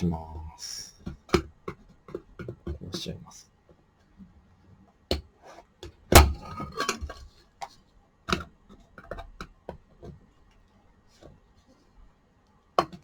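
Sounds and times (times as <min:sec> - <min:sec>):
plastic parts cracking and knocking: 0:05.1 - 0:07.3.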